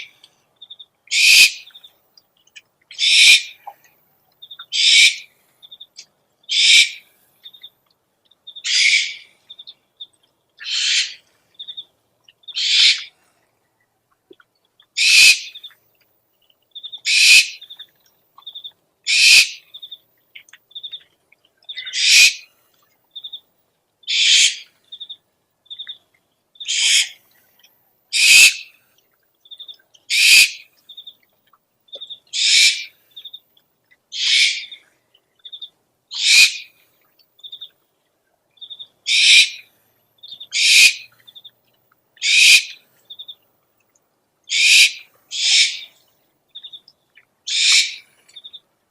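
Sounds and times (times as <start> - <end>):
owl chittering: 0.0 - 1.8, 2.9 - 3.6, 4.5 - 5.3, 6.5 - 7.6, 8.5 - 9.6, 10.6 - 11.8, 12.4 - 13.1, 15.0 - 15.7, 16.8 - 17.8, 18.4 - 19.9, 21.7 - 22.5, 24.1 - 26.0, 26.6 - 27.2, 28.1 - 28.8, 29.6 - 31.1, 32.0 - 33.4, 34.1 - 34.8, 35.4 - 36.8, 38.6 - 41.5, 42.2 - 43.3, 44.5 - 46.0, 47.5 - 48.6
owl screeching: 1.1 - 1.6, 3.0 - 3.6, 4.7 - 5.2, 6.5 - 7.0, 8.7 - 9.3, 10.6 - 11.2, 12.6 - 13.1, 15.0 - 15.5, 17.1 - 17.6, 19.1 - 19.6, 21.8 - 22.4, 24.1 - 24.6, 26.7 - 27.2, 28.2 - 28.7, 30.1 - 30.6, 32.4 - 32.9, 34.2 - 34.8, 36.1 - 36.7, 39.1 - 39.6, 40.5 - 41.1, 42.2 - 42.8, 44.5 - 45.9, 47.5 - 48.0.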